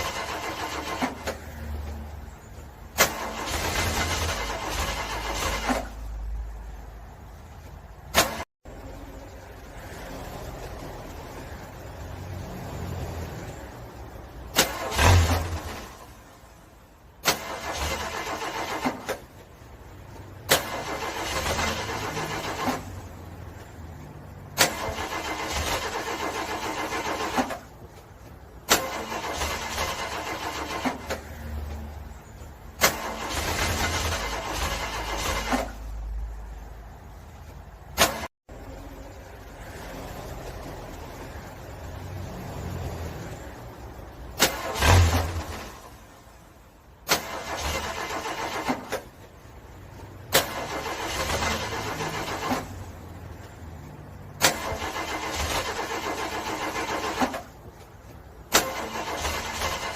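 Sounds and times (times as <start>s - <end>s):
car starter cranking: 0.0s - 6.2s, 14.5s - 16.2s, 17.2s - 19.7s, 20.4s - 23.2s, 24.5s - 31.4s, 32.4s - 36.0s, 44.2s - 46.1s, 47.0s - 49.5s, 50.2s - 53.0s, 54.3s - 59.9s.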